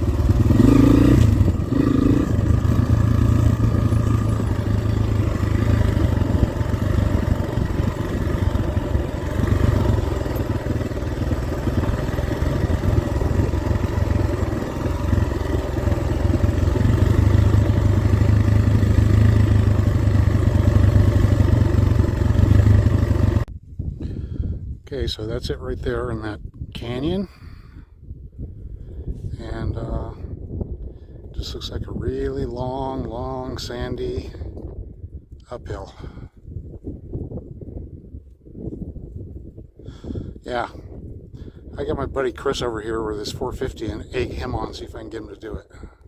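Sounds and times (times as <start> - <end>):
dirt bike engine revving: 0.0 - 23.4.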